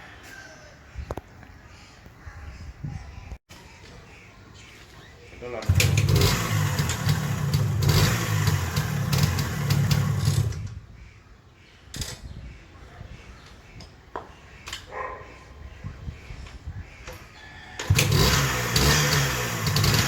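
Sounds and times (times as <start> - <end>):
two-stroke engine running: 5.6 - 10.7, 17.8 - 20.0.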